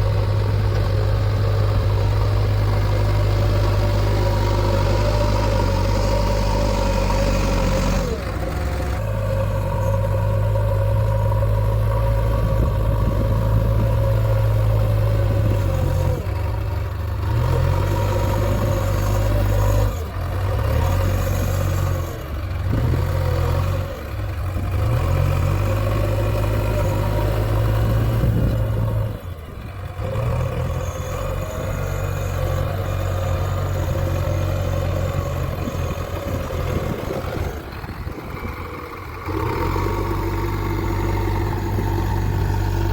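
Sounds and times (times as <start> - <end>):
diesel engine under varying load: 0.0 - 42.9.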